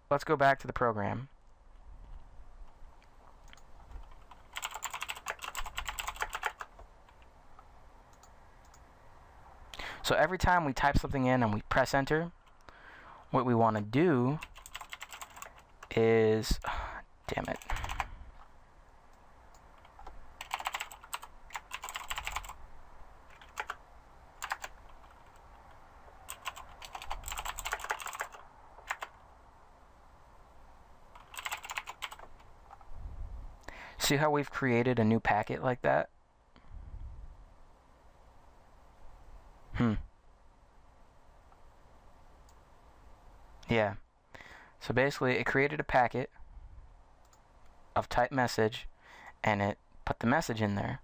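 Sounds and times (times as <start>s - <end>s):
keyboard typing: 3.4s - 7.3s, 8.1s - 8.8s, 14.4s - 16.0s, 17.3s - 18.1s, 19.5s - 22.6s, 23.3s - 23.8s, 24.4s - 29.2s, 31.1s - 32.8s.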